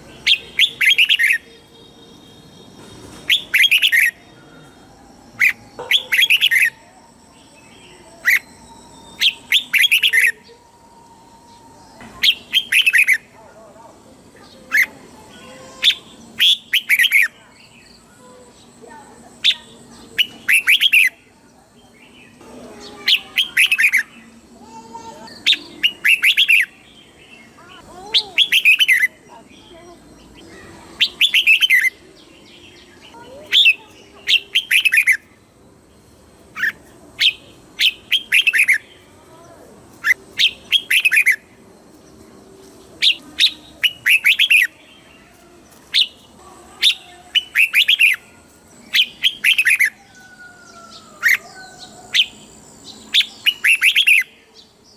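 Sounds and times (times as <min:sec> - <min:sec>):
bird singing chirpy phrases: 0:00.0 - 0:54.9
faint lower bird calls: 0:43.0 - 0:54.8.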